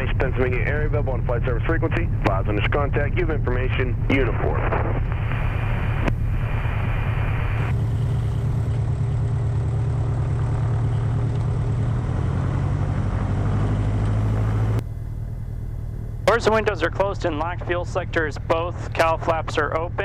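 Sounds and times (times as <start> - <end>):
propeller plane engine droning: 0.0 - 20.0.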